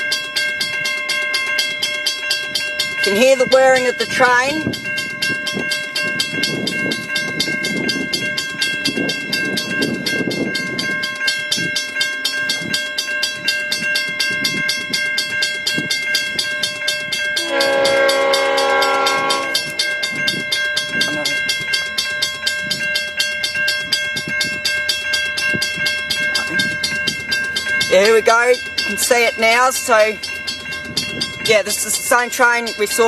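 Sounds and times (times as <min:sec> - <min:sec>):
diesel train rumbling: 0:00.0 - 0:33.0
level-crossing bell ringing: 0:00.0 - 0:33.0
train horn blast: 0:17.4 - 0:19.7.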